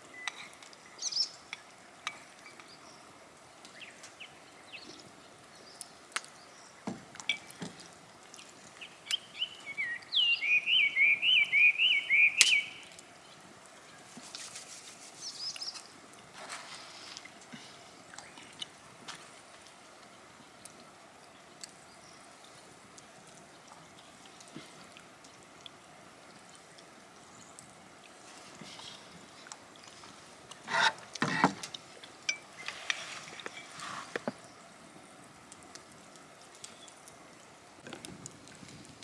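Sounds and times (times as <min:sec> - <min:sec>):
soft bird chirps: 0:08.8 - 0:12.9
bird singing high chirps: 0:09.1 - 0:12.9.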